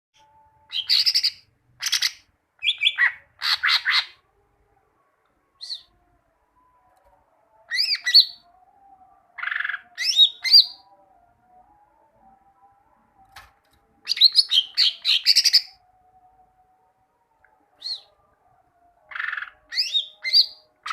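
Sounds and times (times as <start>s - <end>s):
bird singing rapid chirps: 0.2s - 4.1s, 14.0s - 15.8s, 19.1s - 20.9s.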